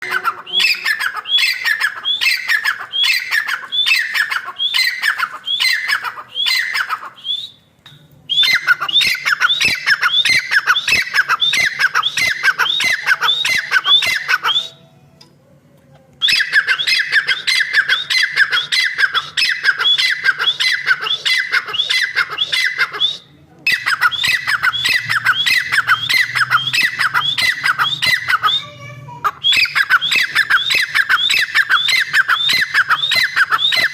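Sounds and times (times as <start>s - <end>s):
francolin calling: 0.0s - 7.6s, 8.3s - 14.8s, 16.2s - 28.8s.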